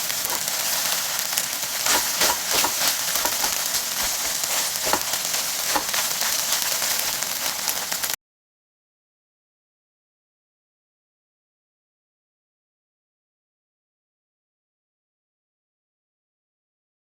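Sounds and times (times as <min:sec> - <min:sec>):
food sizzling in hot oil: 0:00.0 - 0:08.2
utensil knocking against pan: 0:00.3 - 0:00.6, 0:01.8 - 0:06.1.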